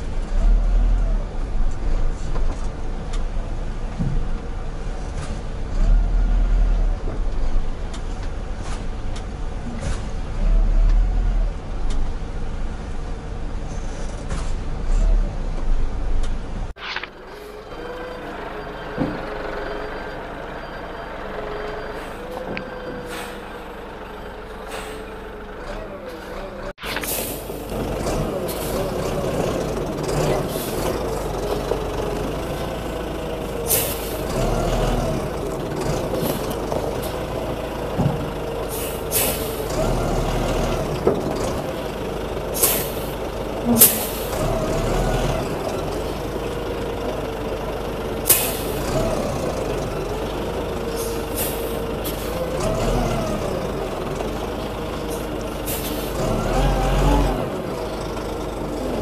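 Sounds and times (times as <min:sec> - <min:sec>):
truck diesel engine running: 0:00.0 - 0:59.0
sharp air hisses: 0:26.8 - 0:27.6, 0:33.7 - 0:34.3, 0:38.7 - 0:39.6, 0:42.6 - 0:43.1.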